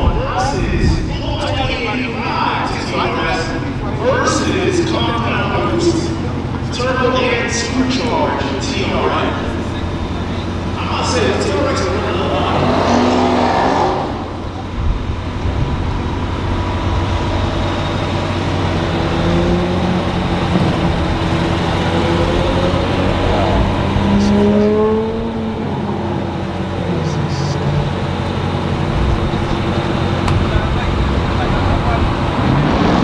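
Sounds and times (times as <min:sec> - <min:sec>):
car engines accelerating: 0:00.0 - 0:33.0.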